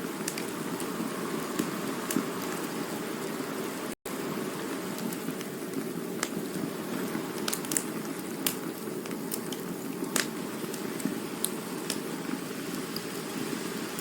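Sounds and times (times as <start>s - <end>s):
wood popping and crackling: 0.0s - 2.7s, 5.0s - 13.2s
campfire flames rushing: 0.0s - 14.0s.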